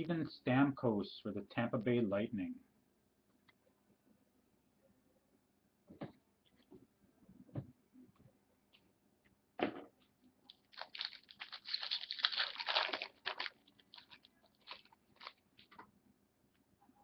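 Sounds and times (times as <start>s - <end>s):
foil wrapper tearing and crinkling: 10.5s - 15.8s.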